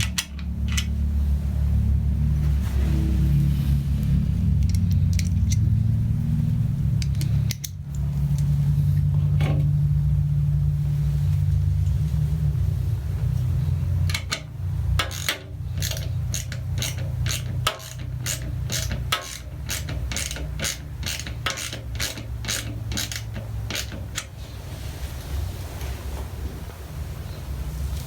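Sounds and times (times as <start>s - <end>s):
ratchet wrench clicking: 0.0s - 1.0s, 4.5s - 5.9s, 6.9s - 8.6s, 14.0s - 24.3s
steady low hum: 0.0s - 28.0s.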